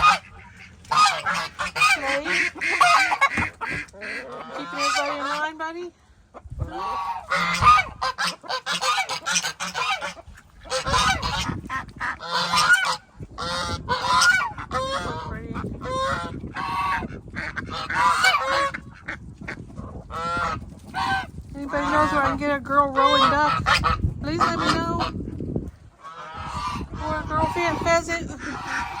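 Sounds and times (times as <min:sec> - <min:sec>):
geese honking: 0:00.0 - 0:05.8, 0:06.7 - 0:25.2, 0:26.0 - 0:29.0.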